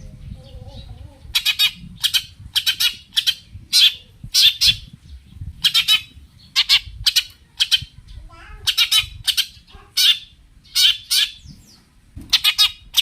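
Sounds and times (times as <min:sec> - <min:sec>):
shrike harsh chattering calls: 0:08.6 - 0:11.4.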